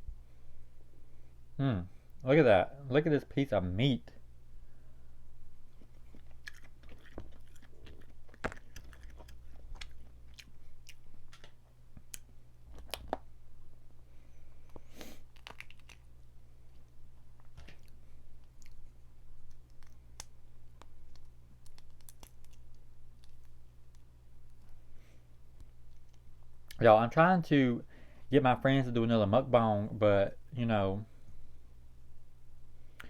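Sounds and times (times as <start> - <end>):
low electrical hum: 0.0 - 33.0
wet chewing and lip smacks: 5.7 - 13.3, 14.6 - 24.8
shells cracking: 15.3 - 16.1.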